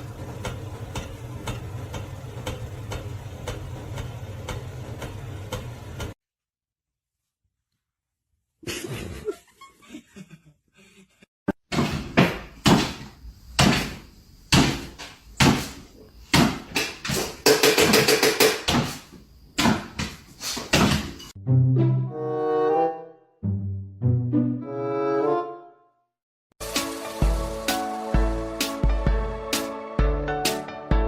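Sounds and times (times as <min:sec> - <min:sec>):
uneven thumps and knocks: 0:11.7 - 0:21.3
music: 0:21.4 - 0:31.0.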